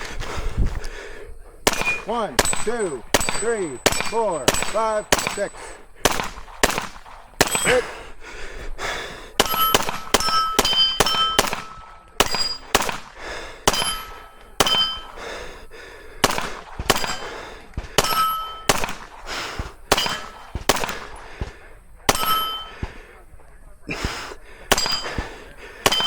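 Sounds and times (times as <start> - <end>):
gunshots: 1.6 - 8.0, 9.4 - 15.2, 16.2 - 23.0, 24.0 - 26.0
steel target ringing: 1.7 - 5.6, 9.4 - 12.8, 13.7 - 15.2, 18.0 - 18.8, 20.0 - 20.6, 22.1 - 22.7, 24.7 - 25.2.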